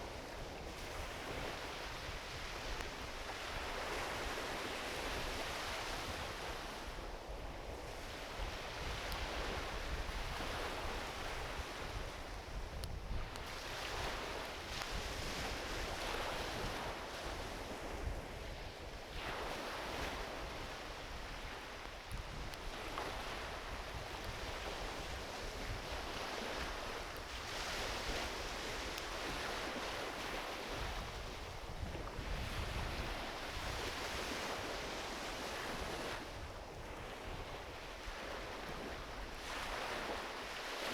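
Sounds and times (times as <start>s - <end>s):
ocean waves washing onto beach: 0.0s - 40.9s
campfire pops: 12.8s - 13.5s.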